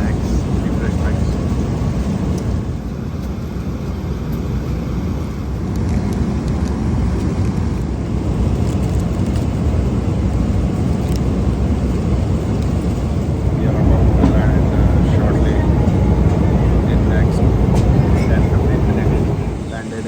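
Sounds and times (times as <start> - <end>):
airliner cabin roar: 0.0 - 20.0.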